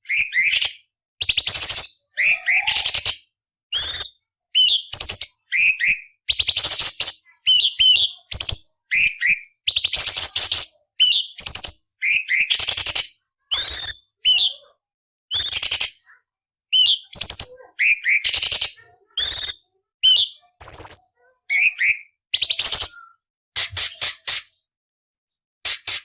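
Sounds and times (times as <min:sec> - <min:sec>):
bird singing whistles and rasps: 0:00.0 - 0:14.6, 0:15.3 - 0:16.1, 0:16.7 - 0:24.6.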